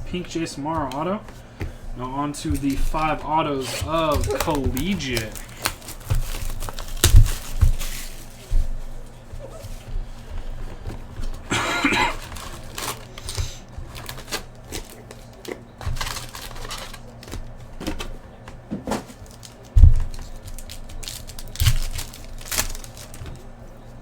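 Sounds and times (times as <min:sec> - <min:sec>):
wrappers crinkling and tearing: 0:02.5 - 0:09.8, 0:11.2 - 0:18.1, 0:18.9 - 0:23.6.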